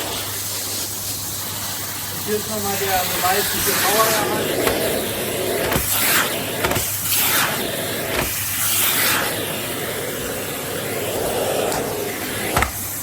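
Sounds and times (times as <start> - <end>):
vacuum cleaner running: 0.0 - 13.0
vacuum nozzle knocks: 4.6 - 5.0, 6.6 - 7.0, 11.7 - 12.9.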